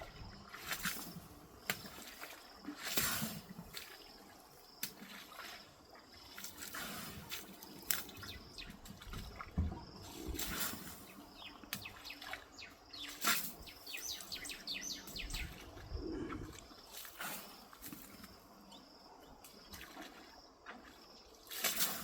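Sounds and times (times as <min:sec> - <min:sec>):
wild birds calling: 0:10.9 - 0:17.1.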